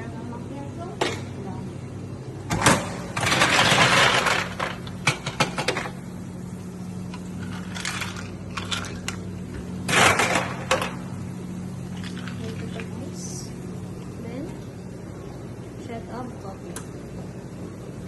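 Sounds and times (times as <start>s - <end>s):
steady low hum: 0.0s - 18.0s
objects clattering at coffee machine: 2.5s - 6.0s, 7.4s - 9.2s, 9.8s - 11.0s, 11.9s - 13.0s.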